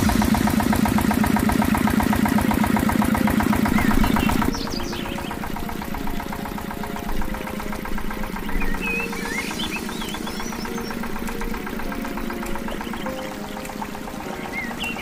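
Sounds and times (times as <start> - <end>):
small pump motor rattling: 0.0 - 15.0.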